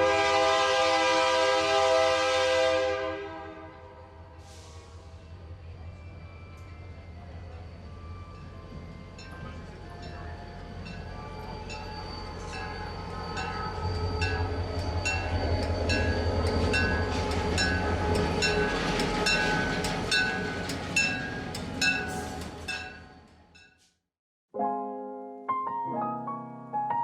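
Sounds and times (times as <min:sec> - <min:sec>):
train rumbling past: 0:00.0 - 0:23.6
plucked note music: 0:24.6 - 0:27.0.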